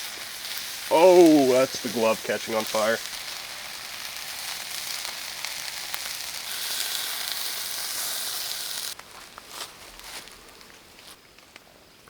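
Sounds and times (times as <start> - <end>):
food sizzling in a pan: 0.0 - 9.0
sharp pops of frying: 0.0 - 9.0.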